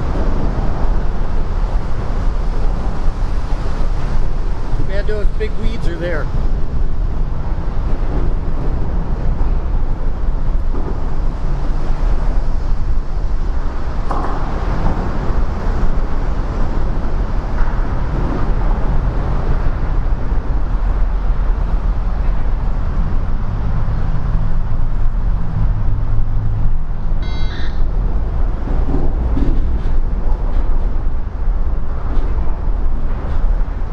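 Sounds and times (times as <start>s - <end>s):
heavy rain: 0.0s - 27.2s
highway traffic: 0.0s - 33.9s
low engine hum: 0.0s - 33.9s
high squeal: 27.2s - 28.0s.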